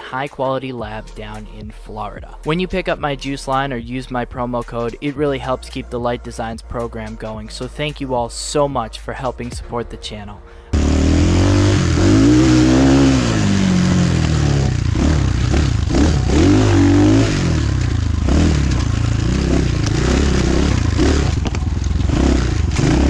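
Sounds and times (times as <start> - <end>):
dirt bike engine revving: 10.7 - 23.0.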